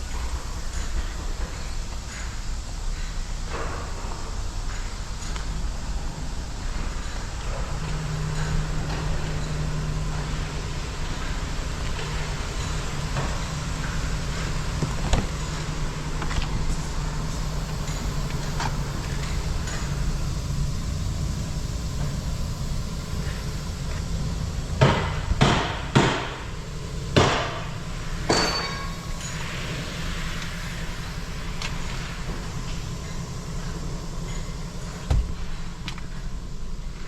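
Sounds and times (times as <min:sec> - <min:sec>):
low mechanical hum: 0:00.0 - 0:37.0
sharp ringing knocks: 0:27.2 - 0:29.5.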